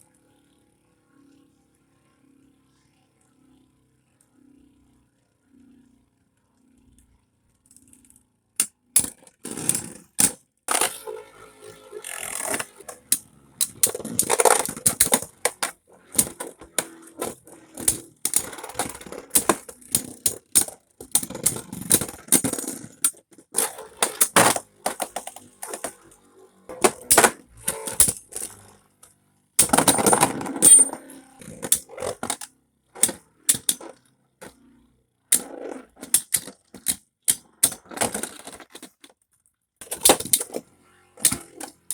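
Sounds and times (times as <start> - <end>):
spinning tops grinding rattle: 12.0 - 26.1.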